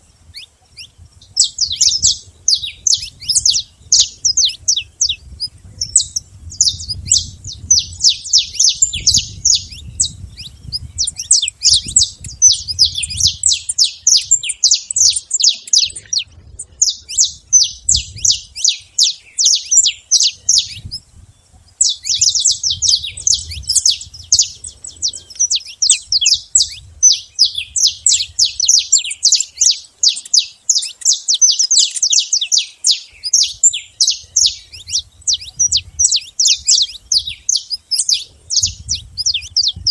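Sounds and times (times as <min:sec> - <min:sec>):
finch singing rapid chirps: 0:00.0 - 0:21.1, 0:21.7 - 0:39.9.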